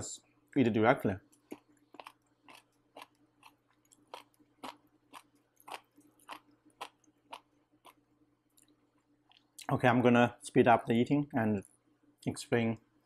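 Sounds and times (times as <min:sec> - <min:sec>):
person chewing food: 0:01.2 - 0:09.7.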